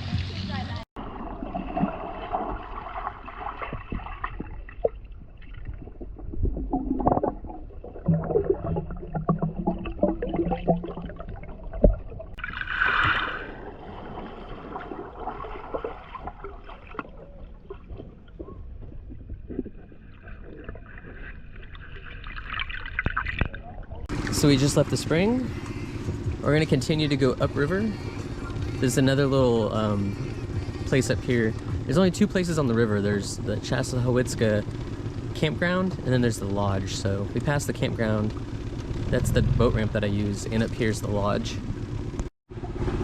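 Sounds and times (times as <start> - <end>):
water sloshing and splashing: 1.0 - 24.5
loud pitched sound: 39.0 - 40.9.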